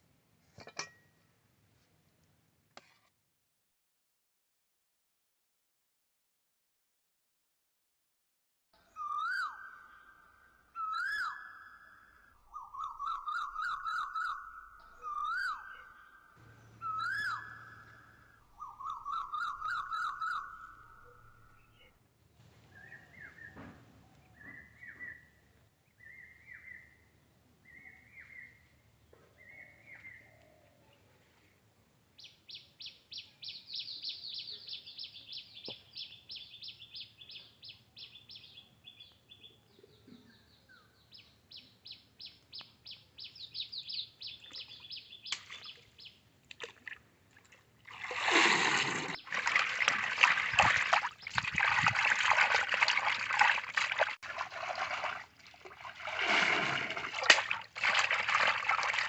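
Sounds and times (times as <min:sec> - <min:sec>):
water splashing: 0:45.3 - 0:59.0.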